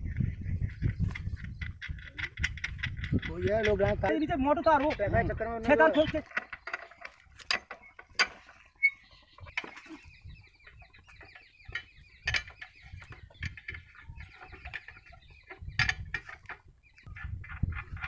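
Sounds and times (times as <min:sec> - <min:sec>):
short bird calls: 0:08.6 - 0:15.9.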